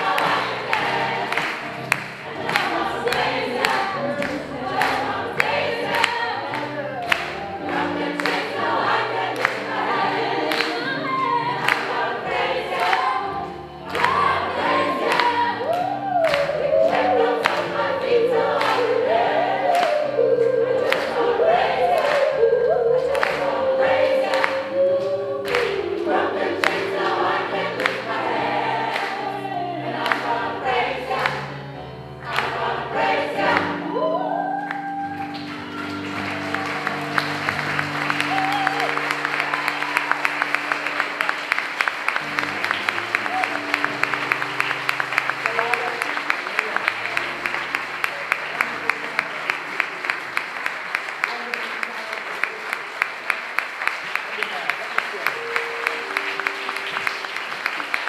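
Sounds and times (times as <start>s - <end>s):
gospel choir singing: 0.0s - 50.5s, 55.4s - 58.0s
solo sung line: 13.0s - 30.0s.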